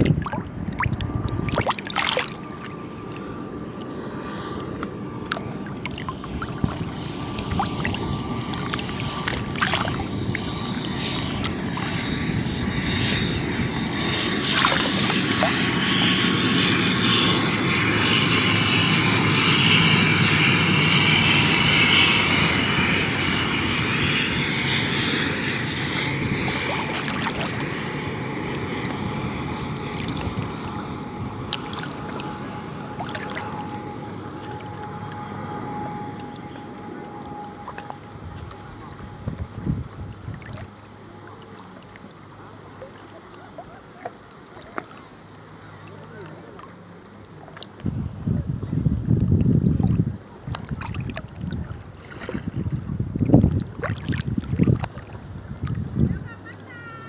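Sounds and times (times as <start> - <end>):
airplane engine droning: 0.0 - 57.0.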